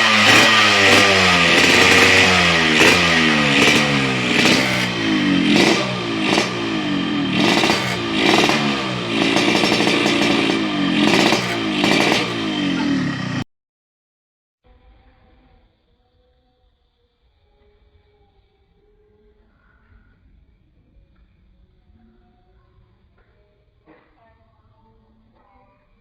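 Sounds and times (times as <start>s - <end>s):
two-stroke motorcycle engine revving: 0.0s - 13.4s.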